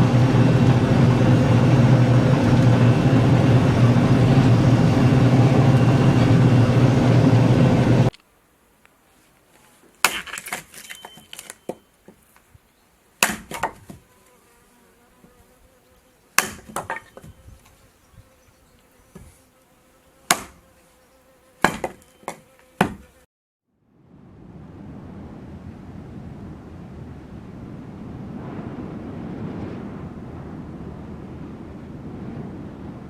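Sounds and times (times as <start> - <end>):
faint steady buzz: 14.0 - 23.3.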